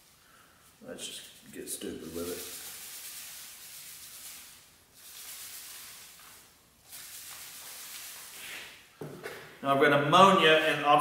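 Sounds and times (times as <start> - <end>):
sprayer hissing: 2.0 - 8.9.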